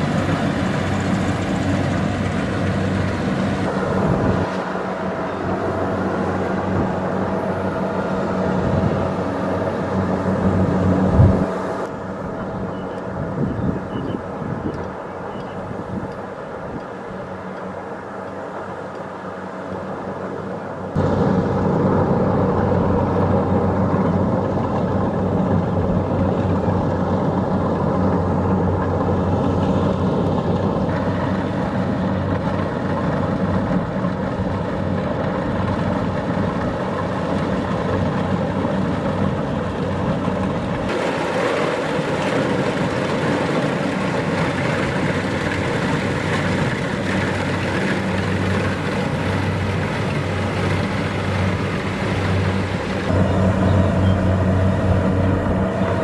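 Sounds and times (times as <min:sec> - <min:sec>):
cutting and threshing machinery rushing: 0:00.0 - 0:12.7, 0:21.0 - 0:56.0
diesel engine droning: 0:00.0 - 0:56.0.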